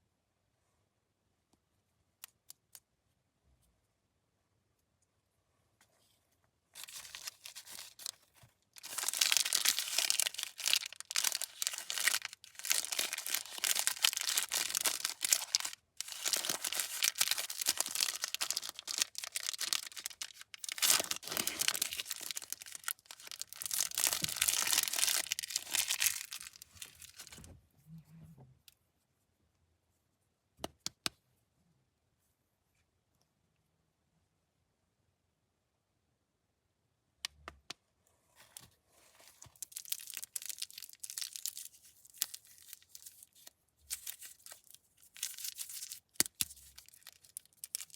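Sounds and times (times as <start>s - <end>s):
candy wrapper tearing and crinkling: 6.8s - 27.4s, 39.3s - 47.9s.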